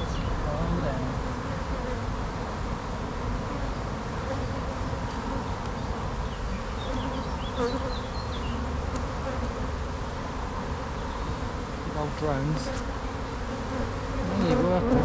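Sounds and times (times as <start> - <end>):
honey bees buzzing: 0.0 - 15.0.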